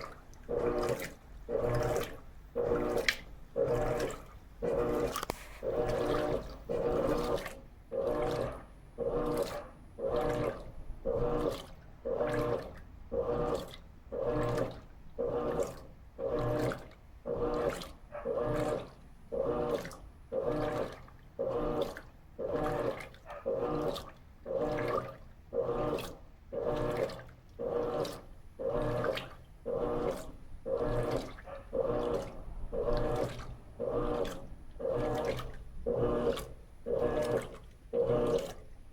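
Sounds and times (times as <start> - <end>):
washing machine motor humming: 0.0 - 38.9
water sloshing in tub: 0.0 - 38.9.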